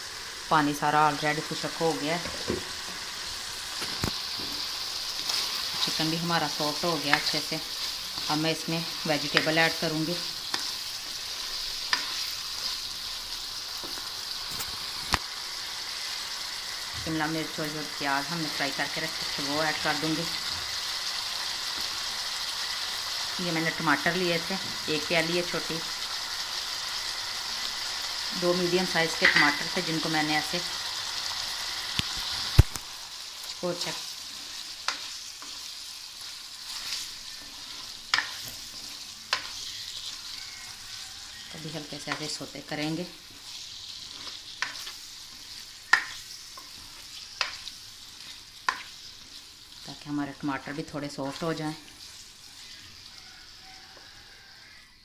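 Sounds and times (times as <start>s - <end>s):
chicken sizzling in oil: 0.0s - 55.0s
spatula stirring food: 2.2s - 16.9s, 31.0s - 54.1s.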